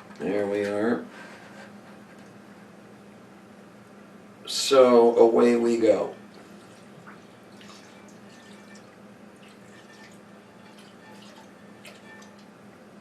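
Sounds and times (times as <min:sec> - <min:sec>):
milk trickling into a bowl: 0:06.3 - 0:12.5.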